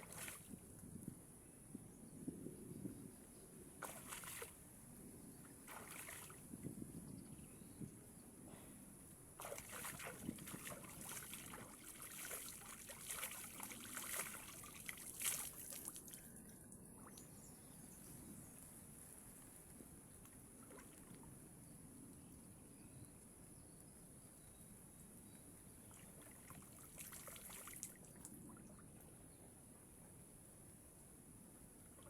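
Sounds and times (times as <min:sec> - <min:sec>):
water splashing and sloshing: 0:00.0 - 0:00.6, 0:03.8 - 0:04.6, 0:05.6 - 0:06.5, 0:09.4 - 0:16.2, 0:26.0 - 0:29.0
flowing stream: 0:09.4 - 0:16.2, 0:26.0 - 0:29.0.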